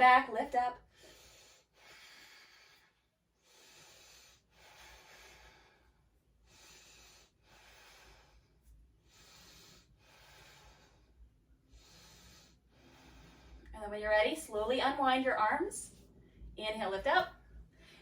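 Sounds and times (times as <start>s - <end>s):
woman breathing slowly: 0.8s - 13.8s, 17.6s - 18.0s.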